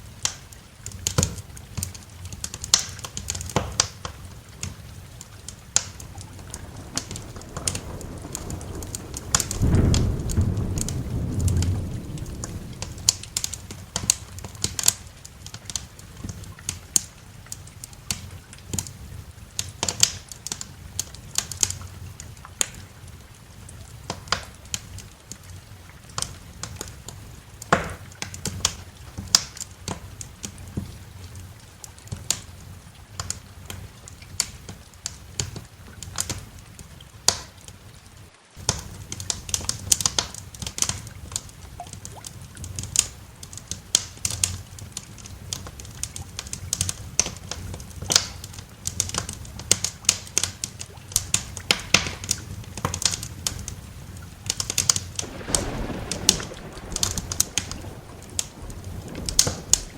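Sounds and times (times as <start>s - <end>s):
wood fire crackling: 0.0s - 59.9s
low steady rumble: 6.0s - 14.6s, 55.2s - 59.9s.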